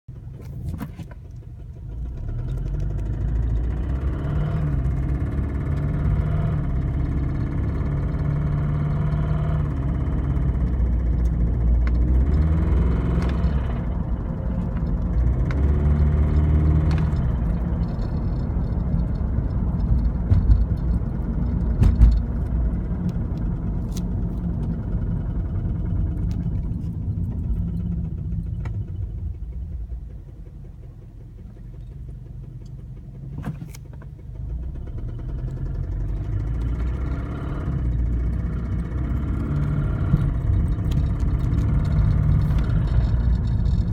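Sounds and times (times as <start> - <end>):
car engine revving: 1.9 - 43.9
knocking noise: 21.7 - 22.4.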